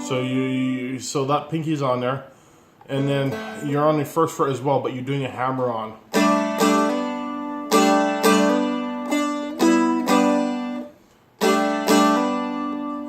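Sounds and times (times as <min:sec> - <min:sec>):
dulcimer picked melody: 0:03.3 - 0:03.8, 0:06.1 - 0:13.0.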